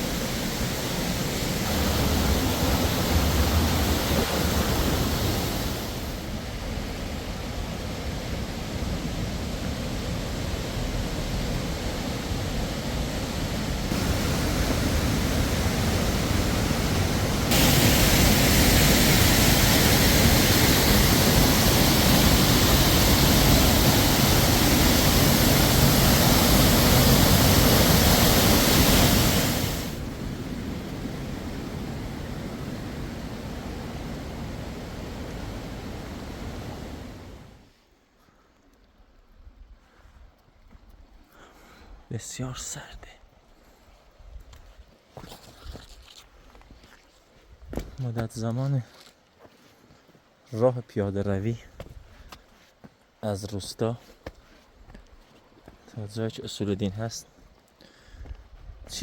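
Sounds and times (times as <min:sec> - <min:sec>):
steady outdoor rushing noise: 0:00.0 - 0:37.6.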